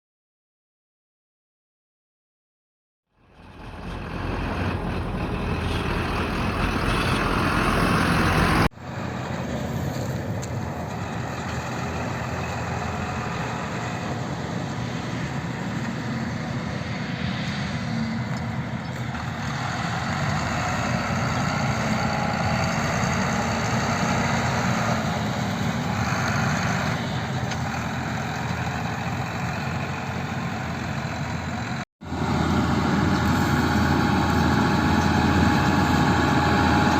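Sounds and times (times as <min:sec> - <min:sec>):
tractor diesel engine running: 0:03.2 - 0:36.9.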